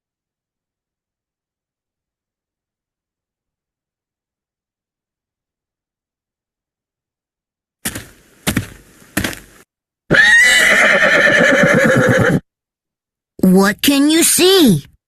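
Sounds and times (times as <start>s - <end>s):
horse hoof strikes: 7.8s - 9.6s
horse neighing: 10.1s - 12.4s.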